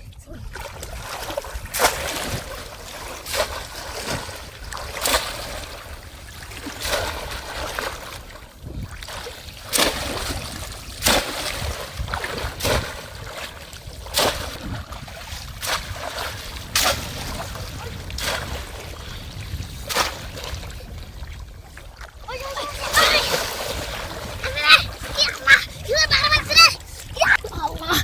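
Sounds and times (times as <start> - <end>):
splashes in shallow water: 0.0 - 28.0.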